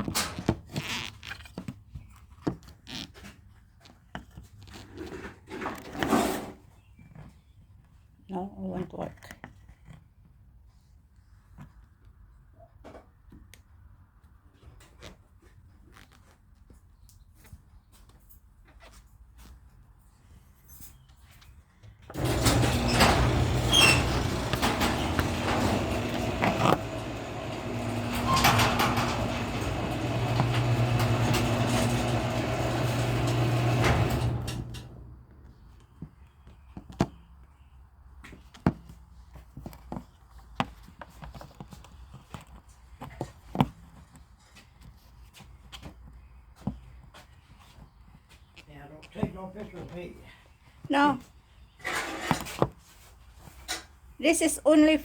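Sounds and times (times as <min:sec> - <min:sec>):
garage door opener motor humming: 0:22.1 - 0:35.3.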